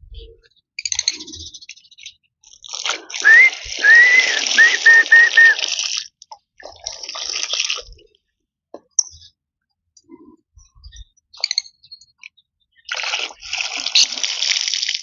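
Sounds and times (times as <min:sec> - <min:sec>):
whistled notes: 0:03.2 - 0:05.6.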